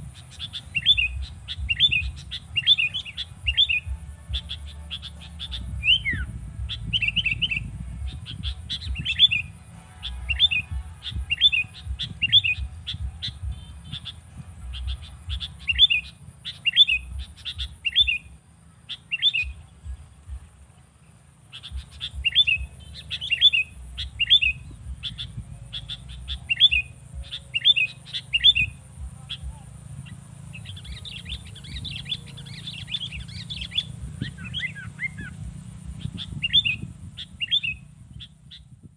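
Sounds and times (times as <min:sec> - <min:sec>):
bird chirping: 0:00.0 - 0:38.9
low rumble: 0:00.9 - 0:16.3.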